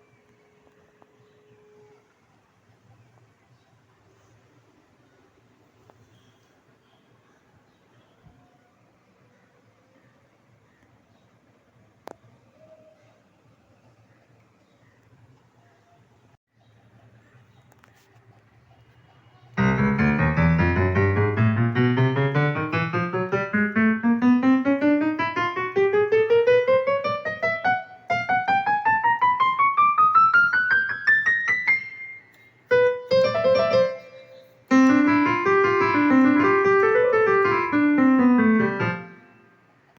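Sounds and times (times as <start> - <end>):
digital keyboard notes: 19.6 - 39.5.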